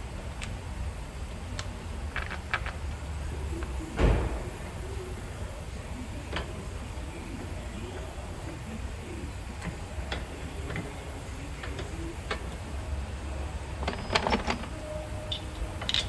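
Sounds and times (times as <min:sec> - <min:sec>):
steady low hum: 0:00.0 - 0:16.0
heavy dull thud: 0:04.0 - 0:04.8.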